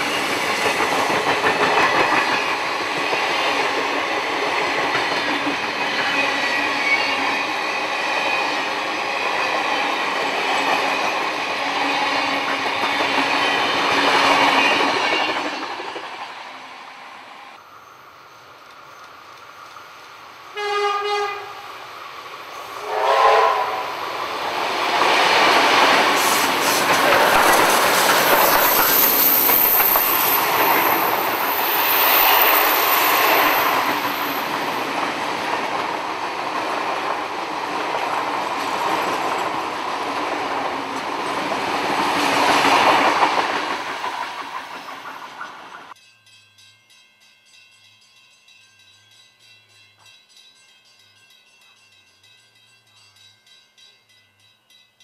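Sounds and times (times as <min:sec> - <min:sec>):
train clattering past: 0:00.0 - 0:16.6, 0:21.6 - 0:46.0
train horn blasts: 0:20.4 - 0:21.7, 0:22.8 - 0:24.0.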